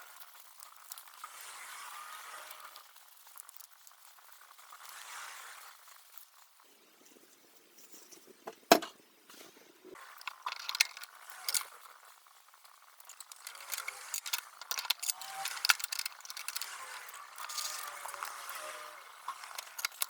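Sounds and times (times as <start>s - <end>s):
hard parts clicking and rattling: 10.0s - 11.9s, 12.7s - 20.0s.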